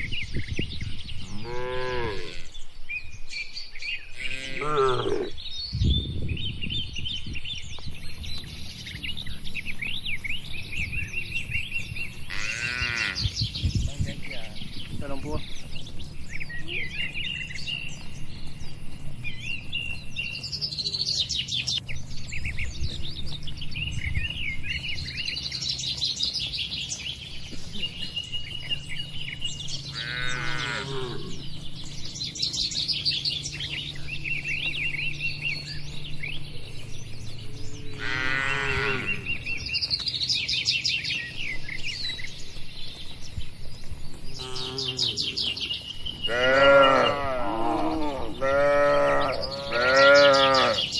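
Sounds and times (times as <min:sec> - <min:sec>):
birds chirping and trilling: 0:00.0 - 0:50.9
cattle mooing: 0:01.2 - 0:02.6, 0:04.2 - 0:05.4, 0:12.3 - 0:13.2, 0:29.9 - 0:31.4, 0:37.8 - 0:39.3, 0:44.4 - 0:45.4, 0:46.2 - 0:50.9.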